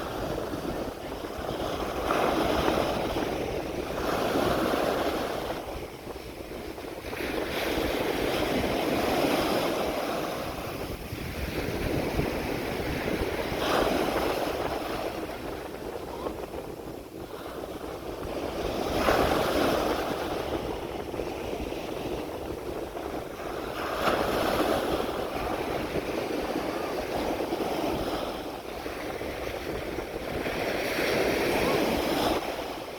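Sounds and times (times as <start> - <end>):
waves breaking on a beach: 0.0 - 32.9.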